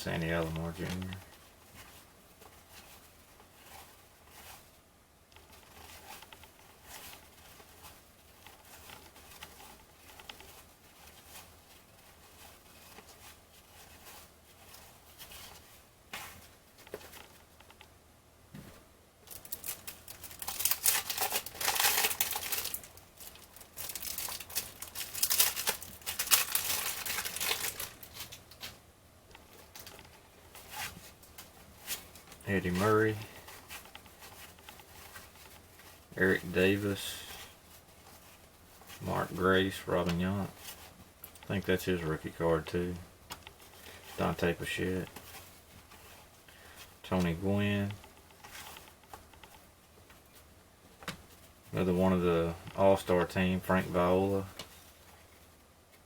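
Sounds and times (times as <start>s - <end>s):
cellophane pack crinkling and tearing: 19.3s - 28.6s.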